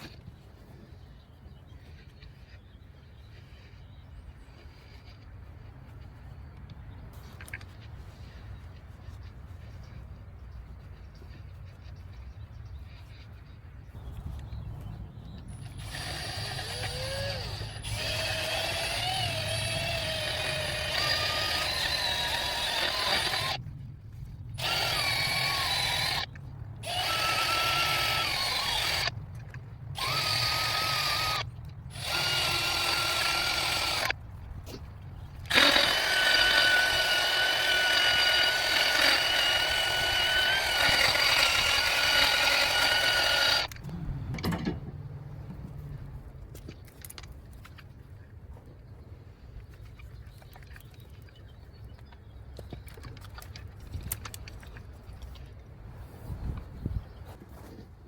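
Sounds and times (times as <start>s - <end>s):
handheld power tool whining: 15.5s - 23.6s, 24.5s - 34.2s, 35.4s - 44.8s.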